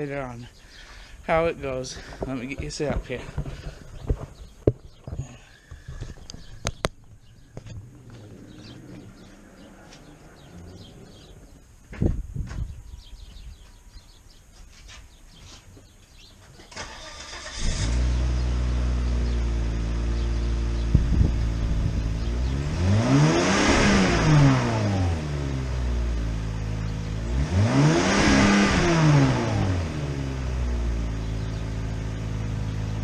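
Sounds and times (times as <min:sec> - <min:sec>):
car engine starting and idling: 0:06.3 - 0:11.7, 0:16.7 - 0:33.0
car engine revving: 0:07.3 - 0:11.6, 0:16.8 - 0:33.0.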